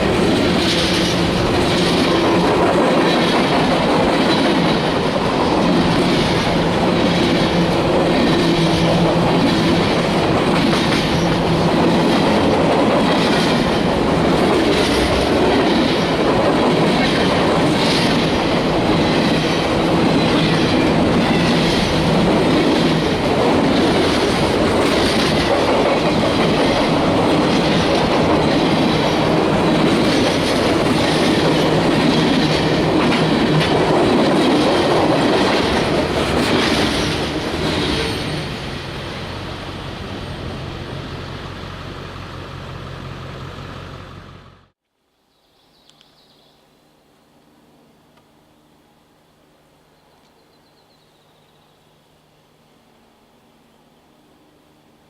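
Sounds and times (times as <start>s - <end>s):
train wheels clicking on rail joints: 0.0s - 39.0s
freight train rumble: 0.0s - 44.8s.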